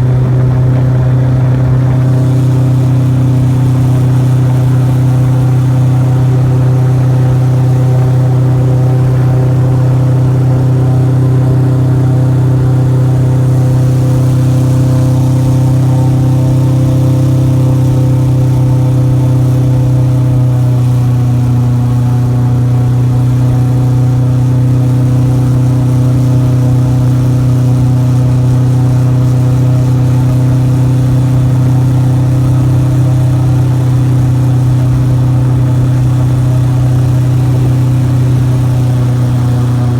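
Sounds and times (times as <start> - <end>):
airboat engine and propeller drone: 0.0 - 39.9.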